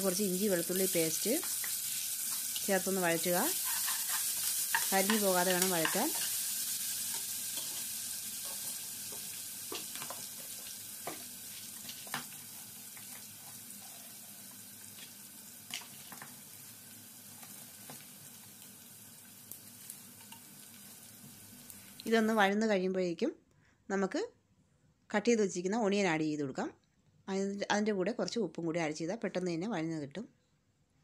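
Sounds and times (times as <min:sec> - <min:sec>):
spices sizzling in hot oil: 0:00.0 - 0:22.7
spatula stirring: 0:01.4 - 0:14.4.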